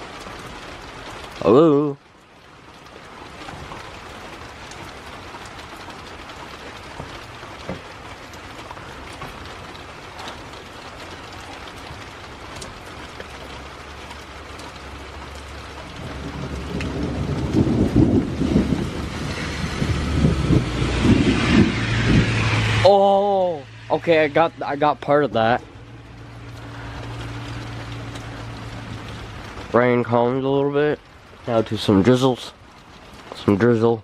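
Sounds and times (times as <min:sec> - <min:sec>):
rain falling: 0:00.0 - 0:34.0
thunder rumbling: 0:03.6 - 0:30.1.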